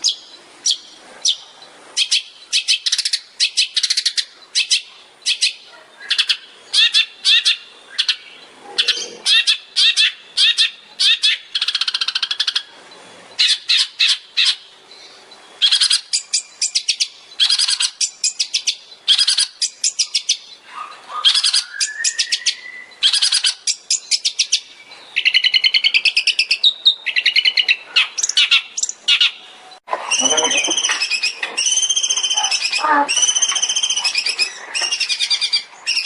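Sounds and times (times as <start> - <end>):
bird rising whistle: 21.5 - 23.0, 30.1 - 36.0
bird singing rapid high notes: 30.1 - 36.0.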